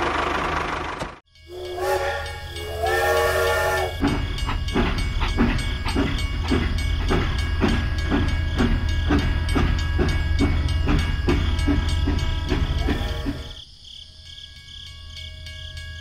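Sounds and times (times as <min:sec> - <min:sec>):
rhythmic chugging: 0:01.4 - 0:13.6
chord horn blasts: 0:01.5 - 0:04.0.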